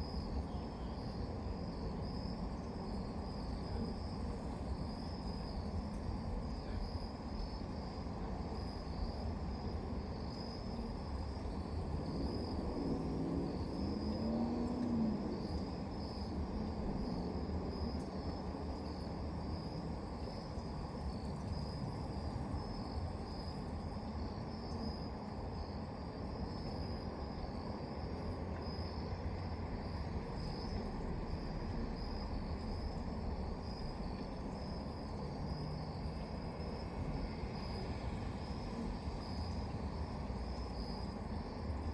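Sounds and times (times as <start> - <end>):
crickets chirping: 0.0 - 41.9
low background rumble: 25.6 - 41.9.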